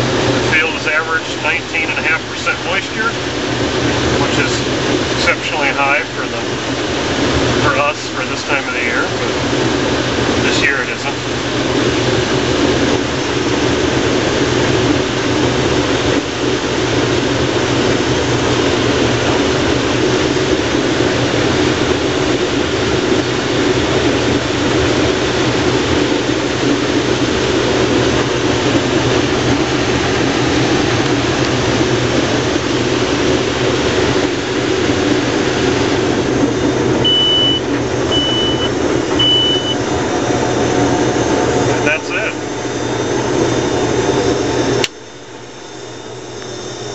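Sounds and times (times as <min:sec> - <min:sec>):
combine harvester running: 0:00.0 - 0:46.9
short high beeps: 0:37.0 - 0:39.8.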